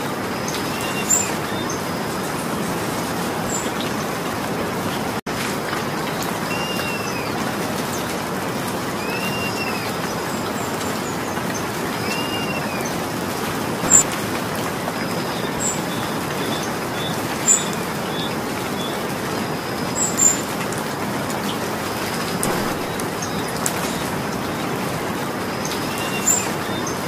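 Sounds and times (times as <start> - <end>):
steady rain falling: 0.0 - 27.0
loud single raindrops striking: 13.8 - 14.4, 22.2 - 24.1.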